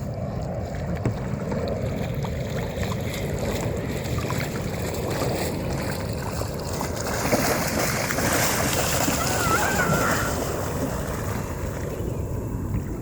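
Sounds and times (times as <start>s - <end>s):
water splashing around kayaks: 0.0s - 13.0s
wind buffeting microphone: 0.0s - 13.0s.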